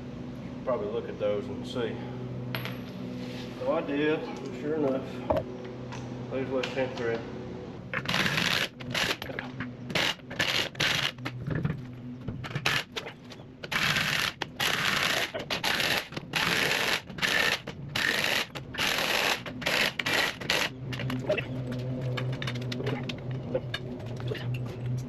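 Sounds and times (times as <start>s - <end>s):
impact wrench bursts: 13.7s - 20.7s.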